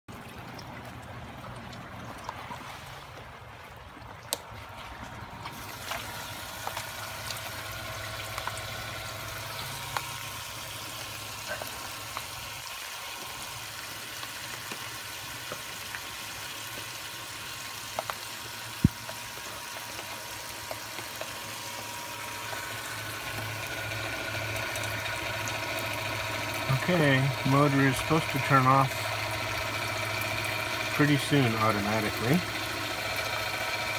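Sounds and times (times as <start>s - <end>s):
electric pump humming: 0.1s - 33.9s
water pouring and splashing: 0.1s - 33.9s
water dripping: 4.0s - 26.7s.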